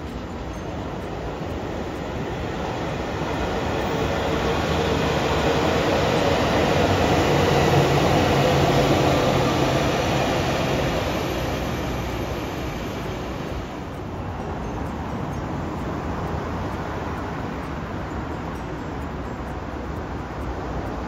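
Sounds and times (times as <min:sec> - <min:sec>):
train passing: 0:00.0 - 0:21.0.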